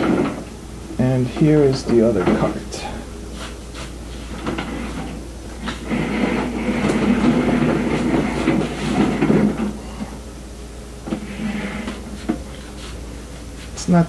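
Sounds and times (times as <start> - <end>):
cart wheels rumbling and rattling: 4.4 - 9.8.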